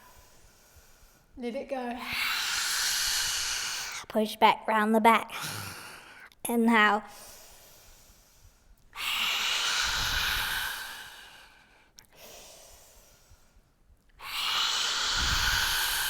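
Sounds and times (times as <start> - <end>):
forceful breathy exhalations: 2.0 - 4.1, 5.3 - 6.2, 7.1 - 13.6, 14.2 - 16.0.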